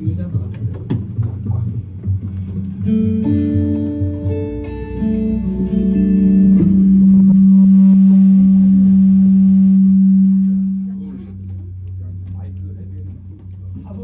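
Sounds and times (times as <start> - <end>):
guitar notes: 2.5 - 12.3.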